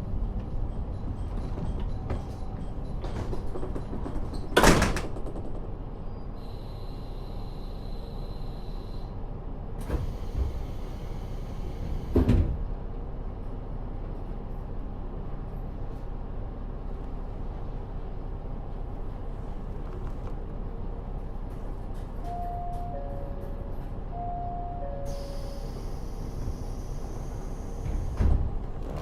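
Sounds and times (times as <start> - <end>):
diesel railcar engine idling: 0.0 - 28.9
sliding door thudding shut: 27.8 - 29.0.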